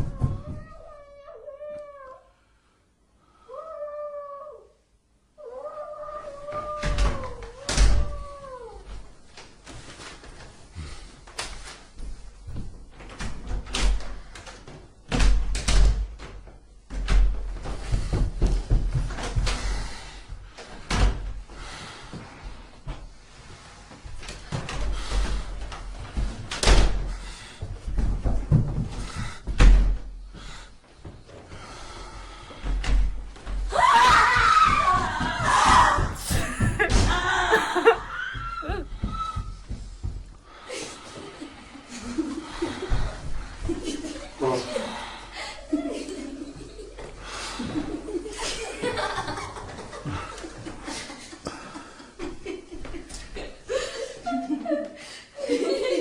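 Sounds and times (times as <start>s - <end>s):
high wavering voice: 36.2s - 38.8s.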